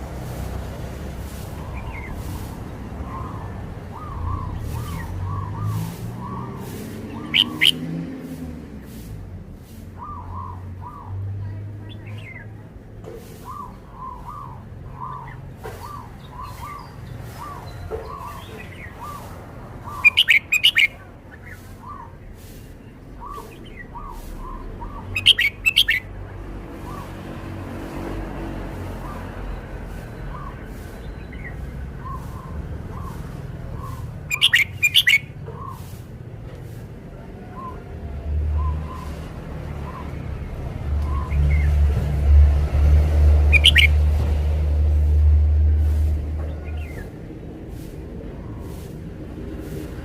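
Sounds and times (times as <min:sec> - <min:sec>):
soft short bird calls: 0:01.6 - 0:07.8, 0:13.4 - 0:26.1, 0:30.2 - 0:36.0, 0:43.5 - 0:43.9
bird singing bright phrase: 0:03.0 - 0:07.8, 0:19.8 - 0:22.2, 0:23.1 - 0:26.1, 0:33.8 - 0:35.8, 0:43.5 - 0:44.0.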